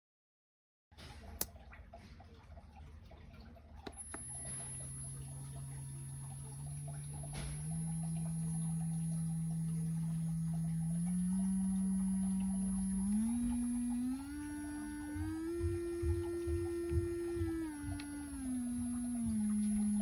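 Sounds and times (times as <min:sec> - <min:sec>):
electric nail drill humming: 0:03.9 - 0:20.0.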